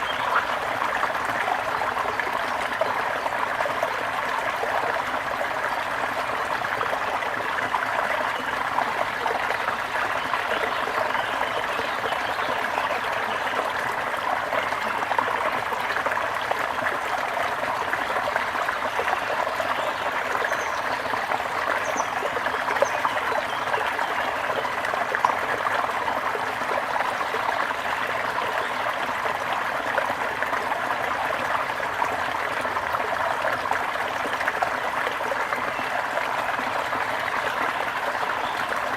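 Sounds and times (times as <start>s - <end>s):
stream trickling and gurgling: 0.0s - 38.9s.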